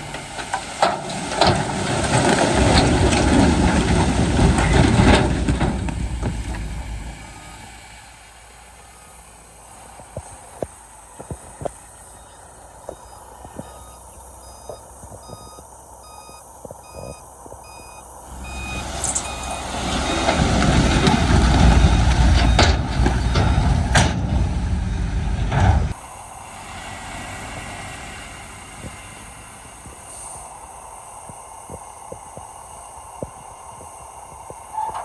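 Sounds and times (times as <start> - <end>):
rock sliding out of truck bed: 0.0 - 7.6
truck reversing alarm beeping: 0.0 - 35.0.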